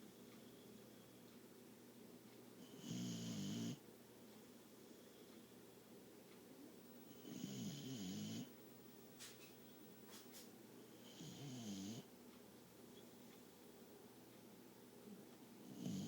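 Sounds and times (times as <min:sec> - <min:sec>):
dog snoring: 0:02.6 - 0:03.8, 0:07.1 - 0:08.5, 0:11.0 - 0:12.1, 0:15.6 - 0:16.0.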